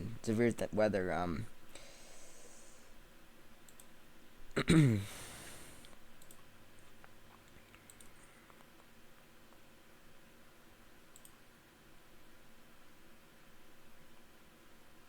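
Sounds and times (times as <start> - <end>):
computer mouse clicks: 3.6 - 3.9, 5.8 - 8.9, 11.1 - 11.4.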